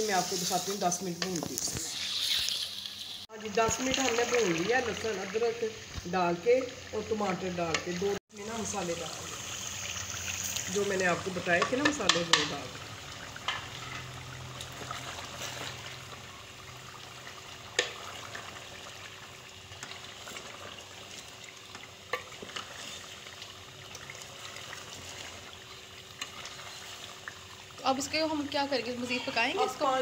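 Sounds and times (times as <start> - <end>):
food sizzling in oil: 0.0 - 30.0
spatula knocking on pot: 11.6 - 12.6.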